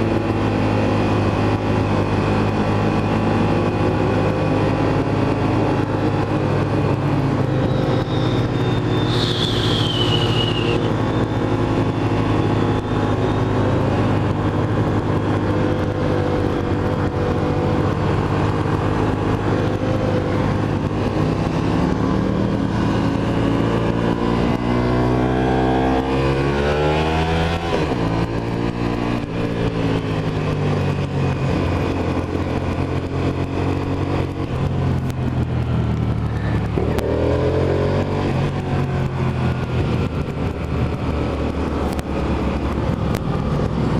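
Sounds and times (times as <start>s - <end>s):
motorcycle engine running: 0.0s - 43.9s
high falling whine: 7.1s - 13.5s.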